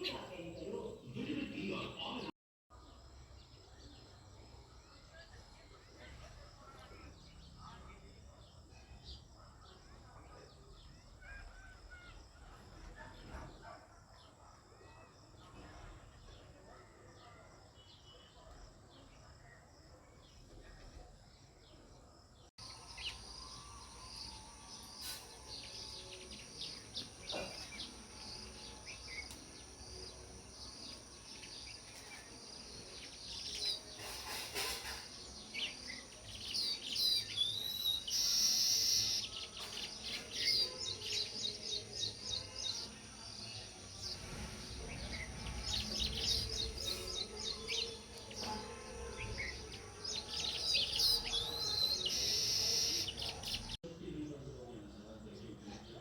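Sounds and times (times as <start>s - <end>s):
sparrows chirping: 20.2s - 56.0s.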